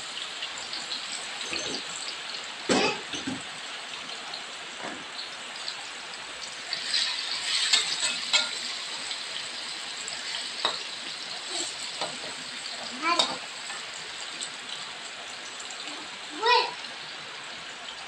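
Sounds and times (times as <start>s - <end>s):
tofu sizzling in oil: 0.0s - 18.0s
metal spatula scraping a wok: 6.8s - 8.8s.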